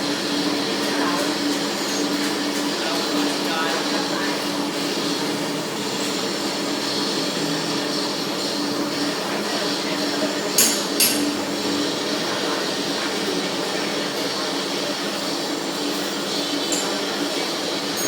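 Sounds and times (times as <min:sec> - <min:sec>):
workshop machinery running: 0:00.0 - 0:18.0
sharp metallic knocks: 0:10.6 - 0:11.3.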